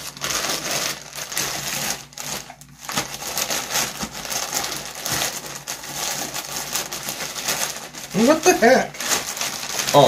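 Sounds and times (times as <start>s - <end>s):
packaging tearing and crinkling: 0.0s - 10.0s.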